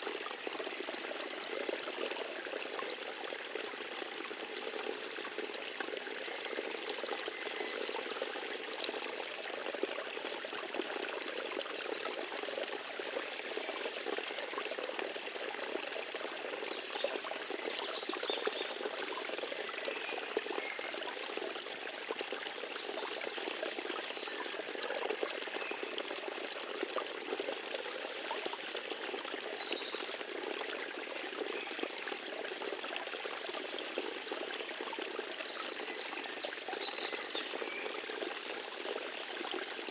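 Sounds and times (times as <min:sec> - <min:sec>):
stream trickling and babbling: 0:00.0 - 0:39.9.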